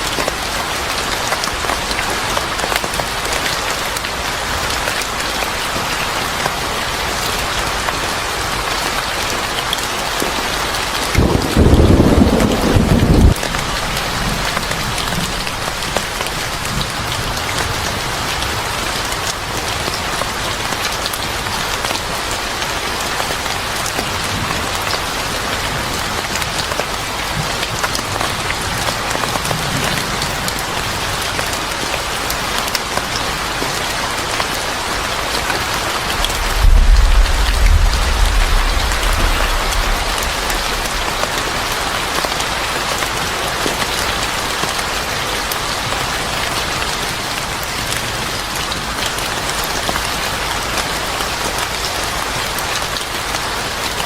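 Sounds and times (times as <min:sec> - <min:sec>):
heavy rain falling: 0:00.0 - 0:54.0
deep low rumble: 0:36.1 - 0:42.2.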